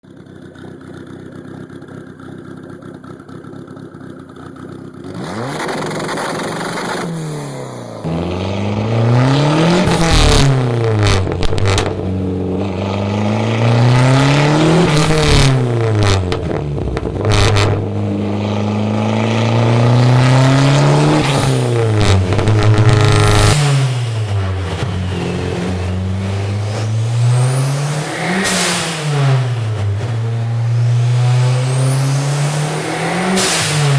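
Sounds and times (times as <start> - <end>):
turbocharged engine revving: 0.4 - 33.9
sharp engine cracks: 8.1 - 18.7.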